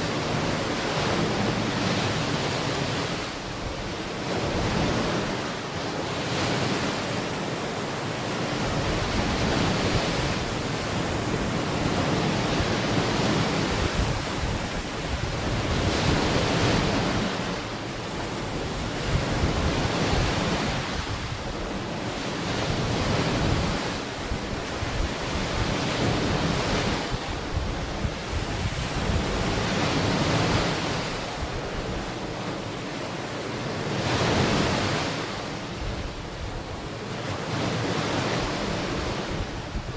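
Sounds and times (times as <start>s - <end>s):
ocean waves breaking on beach: 0.0s - 39.9s
wind buffeting microphone: 8.2s - 32.6s, 35.7s - 39.9s.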